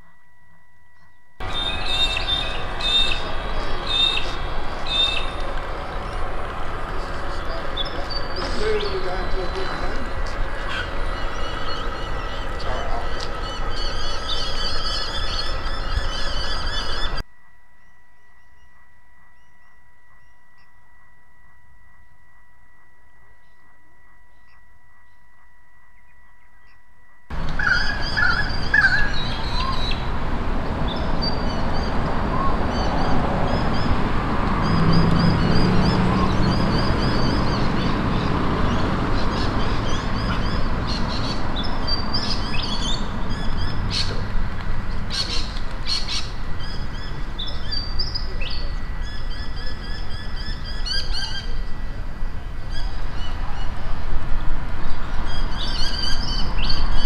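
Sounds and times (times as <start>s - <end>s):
outdoor background noise: 0.0s - 57.0s
small birds chirping: 1.4s - 17.2s.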